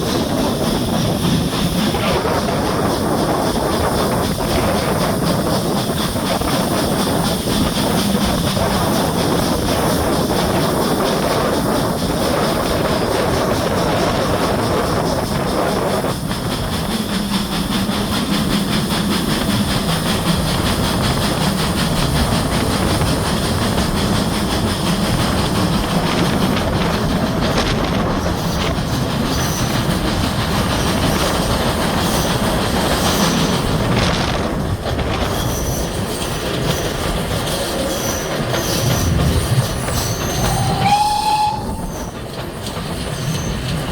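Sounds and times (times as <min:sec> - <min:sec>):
train wheels rumbling on track: 0:00.0 - 0:43.9
high wheel squeal: 0:35.4 - 0:42.3, 0:43.1 - 0:43.8.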